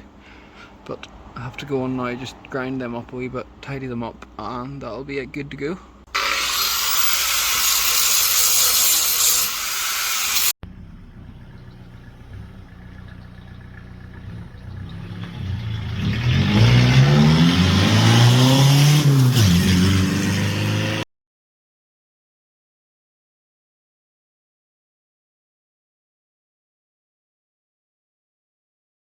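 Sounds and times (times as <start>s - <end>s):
angle grinder grinding metal: 6.1s - 10.6s, 16.9s - 21.0s
diesel engine idling and revving: 10.6s - 21.0s.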